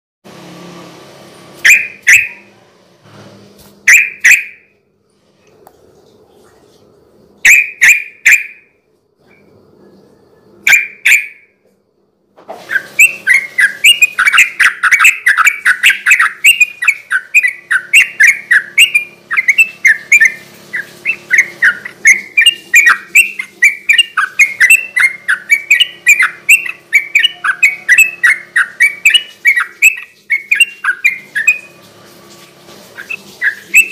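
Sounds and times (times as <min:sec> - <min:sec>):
bulbul singing: 0:01.6 - 0:02.5, 0:03.9 - 0:04.7, 0:07.4 - 0:08.7, 0:10.7 - 0:11.5, 0:12.7 - 0:31.8, 0:33.0 - 0:33.9.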